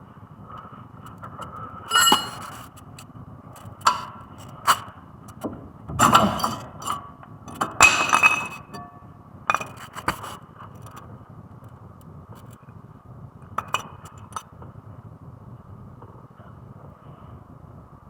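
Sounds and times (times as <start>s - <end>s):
metal tools clanking: 1.9s - 2.7s, 3.9s - 4.8s.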